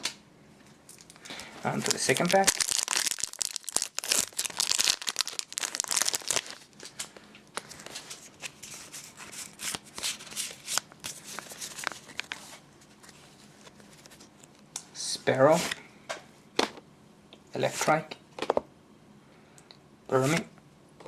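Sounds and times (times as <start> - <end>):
foil wrapper crinkling: 1.0 - 12.4
cards rustling: 1.0 - 14.3.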